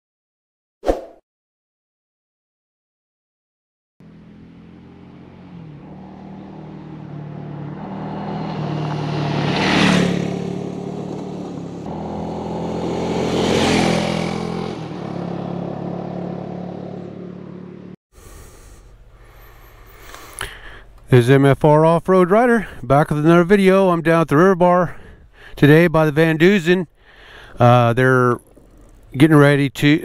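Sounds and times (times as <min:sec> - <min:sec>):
vehicle engine humming: 0:04.0 - 0:30.0
vehicles passing close by: 0:04.0 - 0:30.0.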